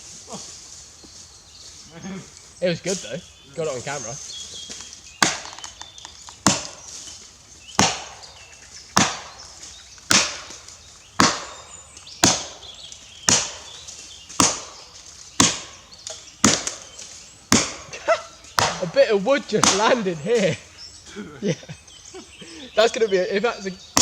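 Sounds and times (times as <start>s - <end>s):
axe chopping wood: 5.2s - 6.9s, 7.7s - 8.3s, 8.9s - 17.9s, 18.5s - 20.0s.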